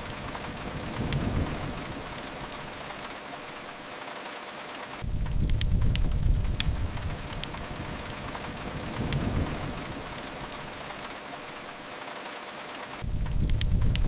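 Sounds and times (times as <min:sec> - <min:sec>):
faint crackles: 0:00.0 - 0:14.0
rain hissing: 0:00.0 - 0:14.0
low rumble: 0:05.0 - 0:10.9.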